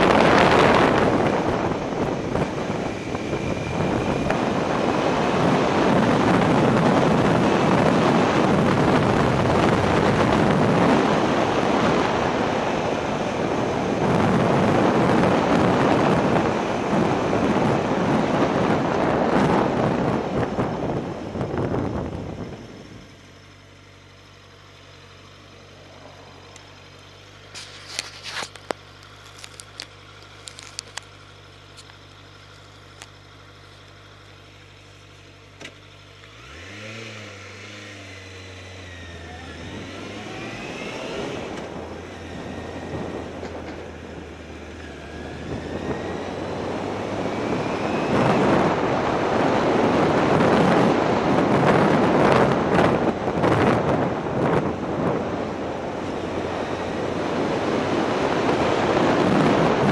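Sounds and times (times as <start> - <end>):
wind rushing over microphone: 0.0 - 23.2, 36.4 - 59.9
motorcycle engine: 0.0 - 59.9.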